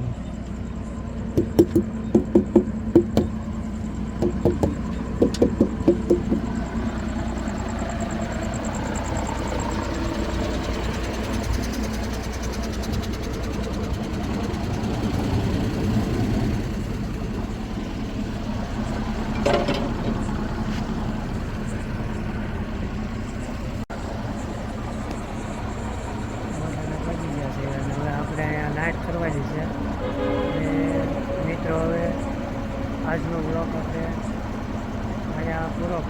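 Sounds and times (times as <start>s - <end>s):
truck engine idling: 0.0s - 36.0s.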